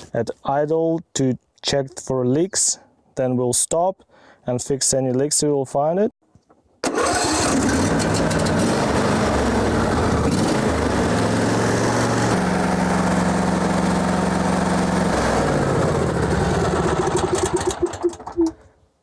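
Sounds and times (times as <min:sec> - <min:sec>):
lawn tractor engine running: 0:06.8 - 0:18.6.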